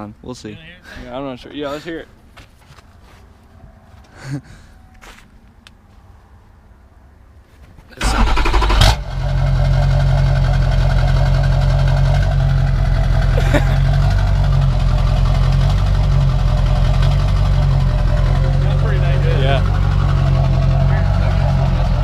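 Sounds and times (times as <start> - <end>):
diesel engine starting and idling: 8.0 - 22.0.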